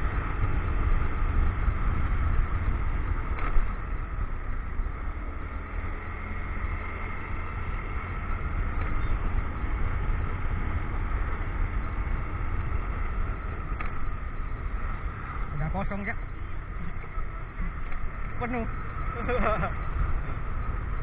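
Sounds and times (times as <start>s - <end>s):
motorcycle engine running: 0.0s - 21.0s
wind rumble on microphone: 0.0s - 21.0s.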